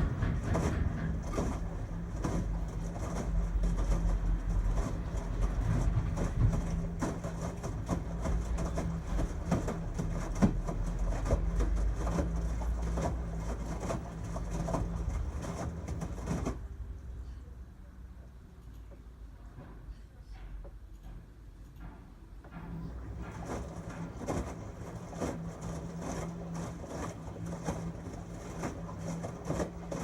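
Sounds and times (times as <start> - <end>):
washing machine drum knocks: 0.0 - 16.5
washing machine motor hum: 0.0 - 19.9, 20.7 - 30.0.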